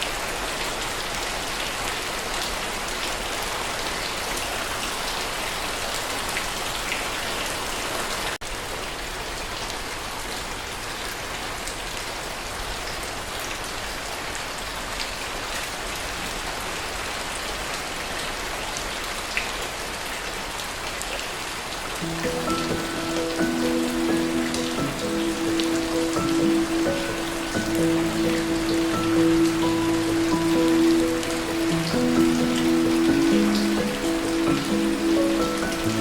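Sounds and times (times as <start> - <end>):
steady rain: 0.0 - 36.0
raindrops ticking: 22.0 - 36.0.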